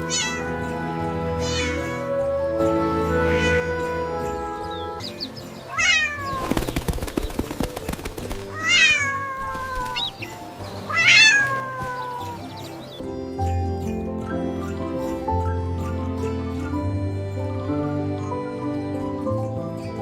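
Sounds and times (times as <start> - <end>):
cat meowing: 0.0 - 2.2, 3.2 - 3.8, 5.7 - 6.4, 8.5 - 10.3, 10.9 - 12.5
soft background music: 0.0 - 20.0.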